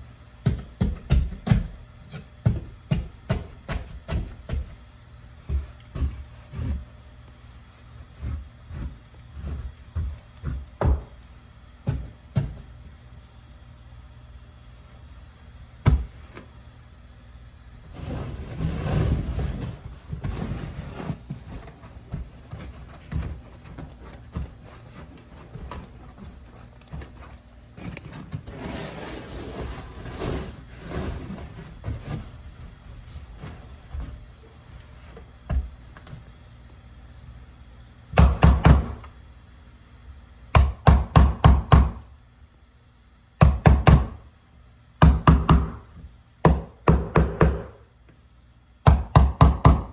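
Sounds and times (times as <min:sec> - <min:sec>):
carpet rustling: 0:17.9 - 0:36.3
rapid hammer strikes: 0:40.5 - 0:42.0, 0:45.0 - 0:45.8, 0:46.4 - 0:47.8, 0:48.8 - 0:49.9.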